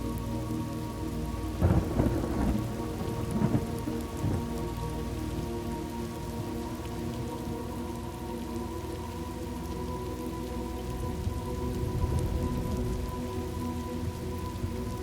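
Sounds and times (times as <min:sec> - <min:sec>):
steady rain: 0:00.0 - 0:15.0
thunder rumbling: 0:01.6 - 0:04.6.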